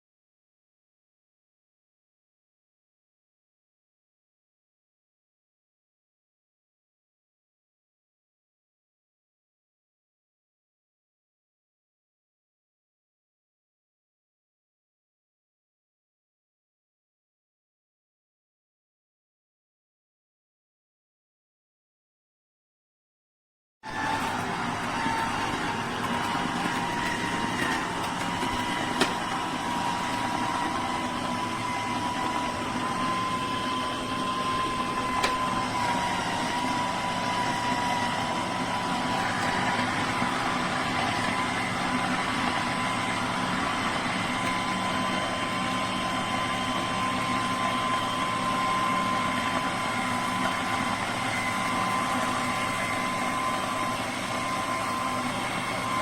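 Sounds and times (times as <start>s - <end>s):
electric juicer motor humming: 23.9s - 56.0s.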